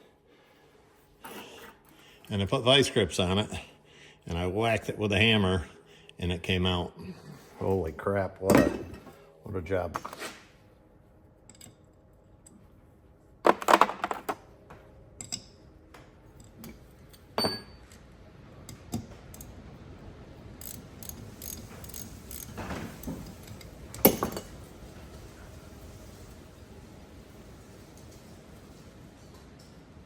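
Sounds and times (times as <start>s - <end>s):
metal parts and tools clinking: 20.6s - 24.6s.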